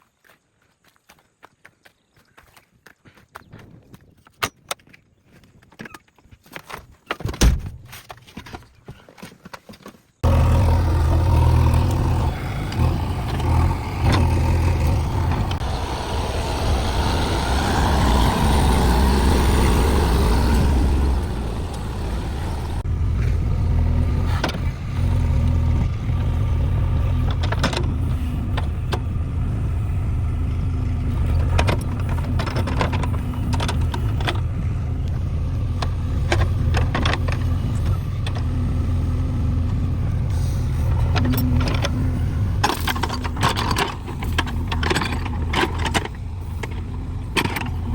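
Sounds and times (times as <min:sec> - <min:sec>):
diesel engine revving: 0:10.2 - 0:47.9.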